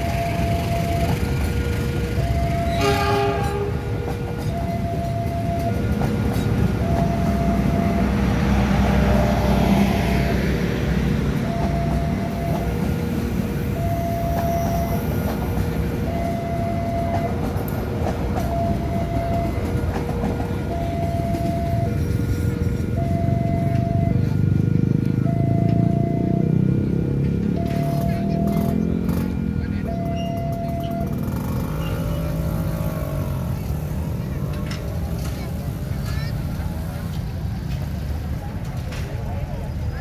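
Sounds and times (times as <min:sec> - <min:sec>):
level-crossing alarm two-tone: 0:00.0 - 0:10.7, 0:11.3 - 0:24.3, 0:25.2 - 0:26.6, 0:27.5 - 0:34.2
train coaches rumbling on rails: 0:00.0 - 0:40.0
train horn blast: 0:02.6 - 0:04.4.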